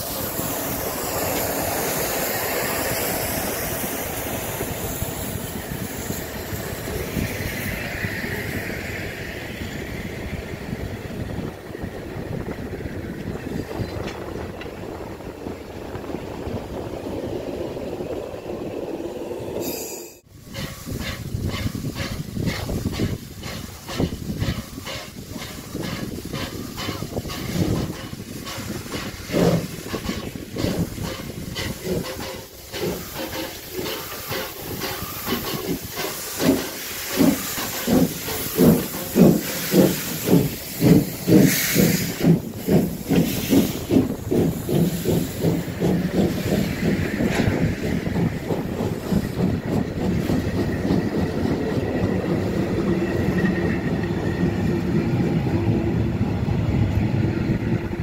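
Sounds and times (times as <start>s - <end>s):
steam hiss: 0.0s - 13.0s, 19.6s - 55.4s
steam locomotive exhaust chuffs: 20.3s - 58.0s.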